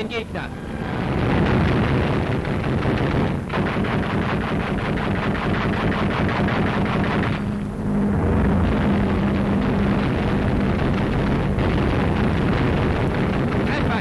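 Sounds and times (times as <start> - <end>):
piston aircraft engines droning: 0.0 - 14.0
machine-gun fire: 1.0 - 7.6, 8.6 - 14.0.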